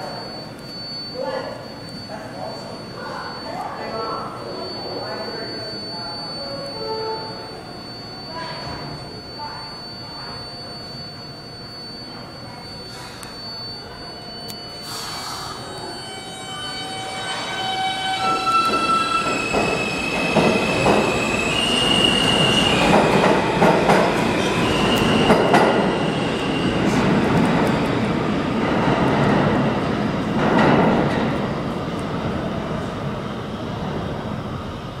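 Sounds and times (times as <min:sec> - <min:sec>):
subway train propulsion whine: 0:00.0 - 0:35.0
steel wheels clattering and squealing: 0:15.8 - 0:27.9.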